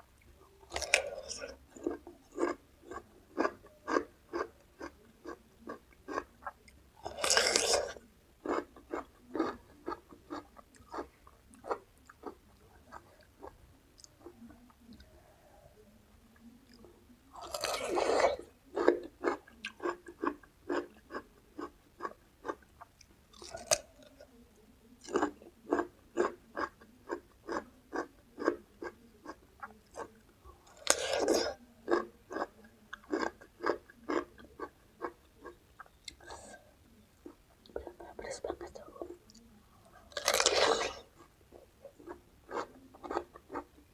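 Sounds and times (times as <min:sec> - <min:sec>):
crunching bites of food: 0:00.6 - 0:11.1, 0:17.3 - 0:20.9, 0:23.3 - 0:24.2, 0:25.0 - 0:35.1, 0:40.0 - 0:41.3
person chewing: 0:00.6 - 0:14.3, 0:16.7 - 0:22.6, 0:25.0 - 0:37.4, 0:38.5 - 0:43.8.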